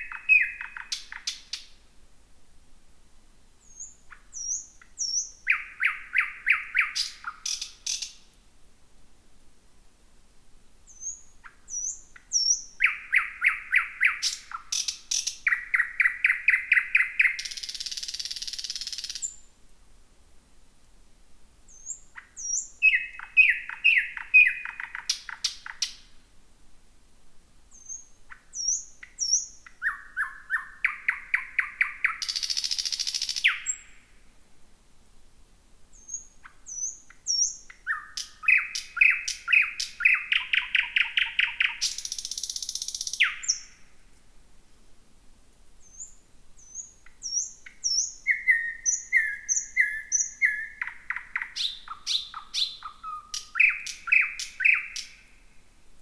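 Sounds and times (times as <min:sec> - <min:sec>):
bird singing: 0:00.0 - 0:01.7, 0:03.6 - 0:08.2, 0:10.9 - 0:19.5, 0:21.7 - 0:26.1, 0:27.7 - 0:34.0, 0:36.0 - 0:43.9, 0:45.8 - 0:55.3.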